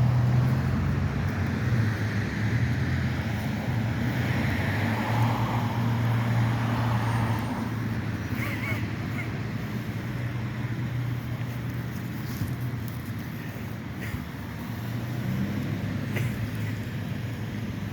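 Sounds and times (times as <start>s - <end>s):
cars passing on a road: 0.0s - 17.9s.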